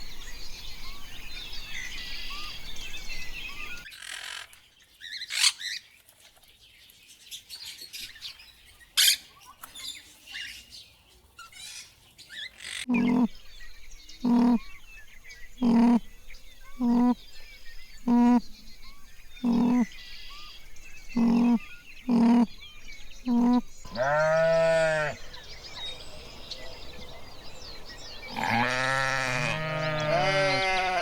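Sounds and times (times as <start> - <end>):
farm animal bleating: 12.9 - 13.3, 14.3 - 14.6, 15.6 - 16.0, 16.8 - 17.2, 18.1 - 18.4, 19.4 - 19.9, 21.2 - 22.5, 23.3 - 25.2, 28.3 - 31.0.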